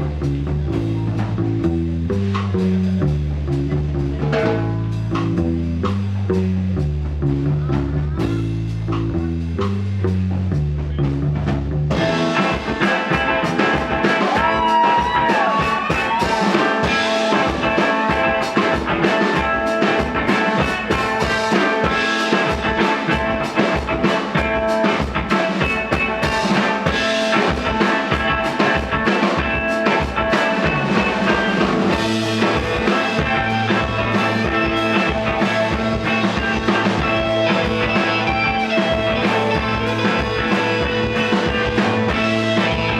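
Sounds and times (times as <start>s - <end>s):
live rock band playing: 0.0s - 42.9s.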